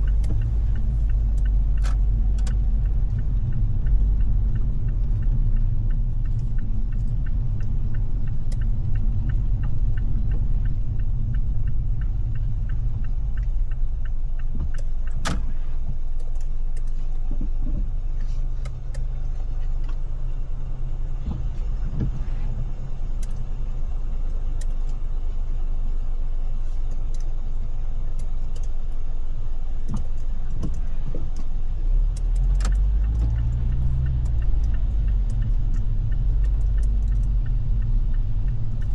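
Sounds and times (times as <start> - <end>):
rain ticking on car: 0.0 - 17.9, 28.0 - 38.9
car driving rumble: 0.0 - 38.9.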